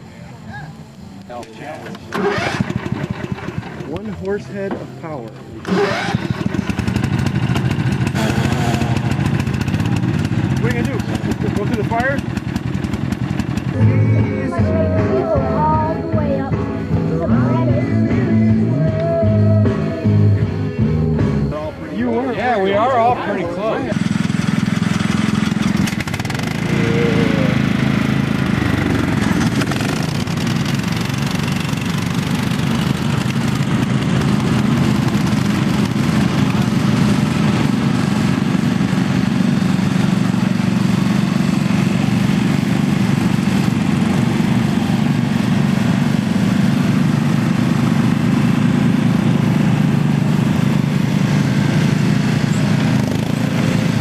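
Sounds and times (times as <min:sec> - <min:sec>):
lawn mower engine running: 0:00.0 - 0:54.0.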